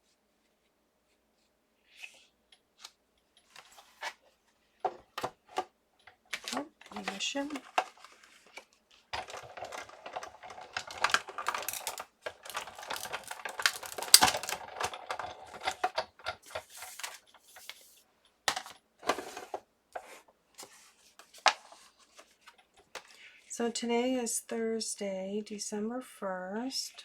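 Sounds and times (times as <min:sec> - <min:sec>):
paper rustling: 0:06.3 - 0:23.2
tools clicking and tapping: 0:10.5 - 0:17.7.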